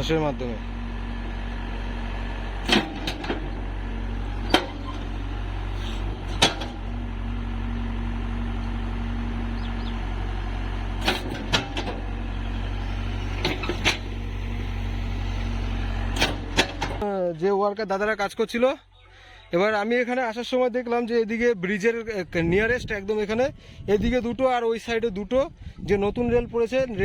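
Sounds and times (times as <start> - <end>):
engine humming: 0.0 - 17.1
sharp knocks or clanks: 2.6 - 3.6, 4.4 - 5.0, 6.3 - 6.9, 11.0 - 12.1, 16.2 - 17.0.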